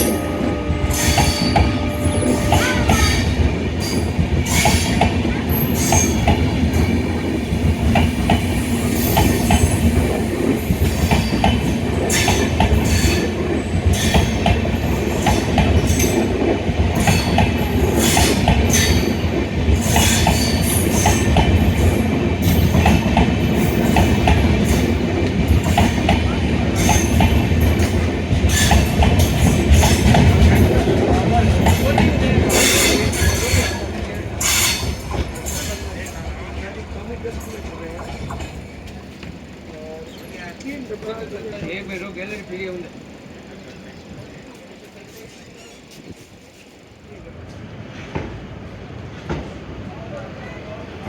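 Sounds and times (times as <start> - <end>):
train rumbling on track: 0.0 - 51.0.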